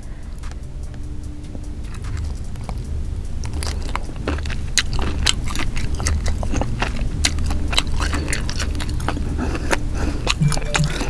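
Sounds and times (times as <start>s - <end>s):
biting and chewing squid: 3.4s - 10.5s.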